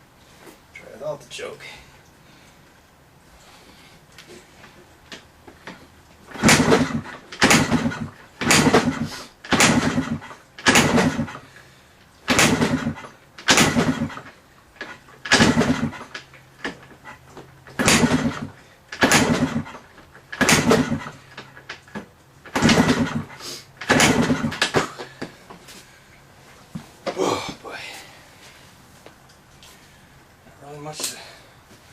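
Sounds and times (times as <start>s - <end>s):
motorcycle kick-start: 5.1s - 11.6s, 12.2s - 25.3s
engine turning over: 5.1s - 25.4s.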